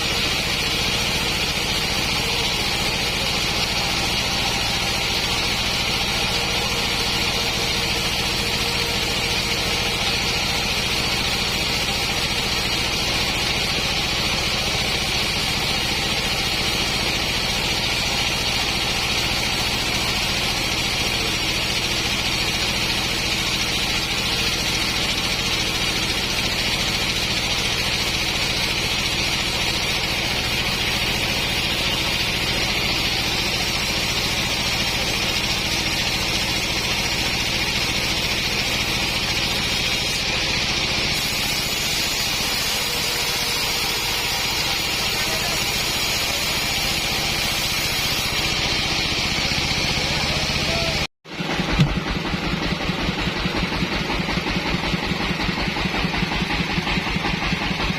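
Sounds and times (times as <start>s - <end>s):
sawmill engine running: 0.0s - 57.9s.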